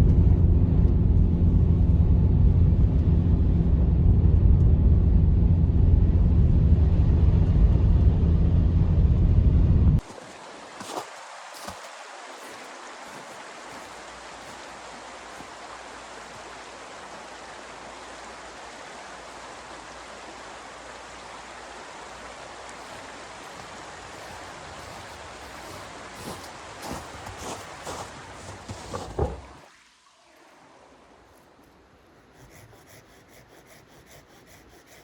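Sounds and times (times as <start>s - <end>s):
steady rushing hiss: 10.0s - 29.7s.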